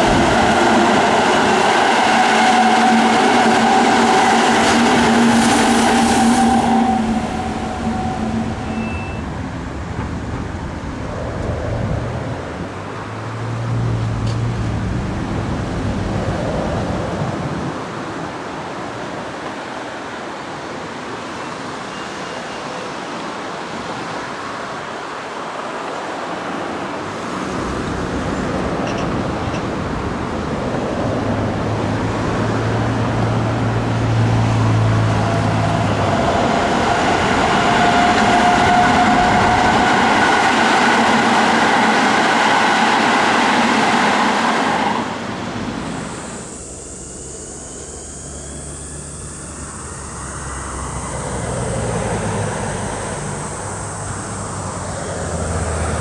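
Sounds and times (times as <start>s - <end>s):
electric train approaching: 0.0s - 12.7s, 23.9s - 56.0s
electric train running past: 0.0s - 56.0s
outdoor background noise: 0.0s - 56.0s.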